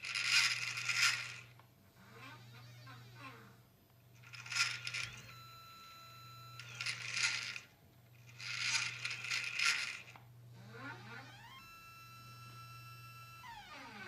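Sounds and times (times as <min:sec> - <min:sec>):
telescope mount motors slewing: 0:06.5 - 0:07.6, 0:08.2 - 0:14.0
steady motor whine: 0:08.3 - 0:14.0.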